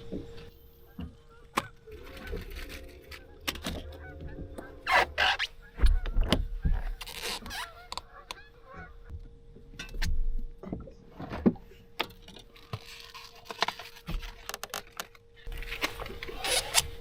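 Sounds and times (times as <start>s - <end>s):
fishing gear clicking and rattling: 12.0s - 17.0s.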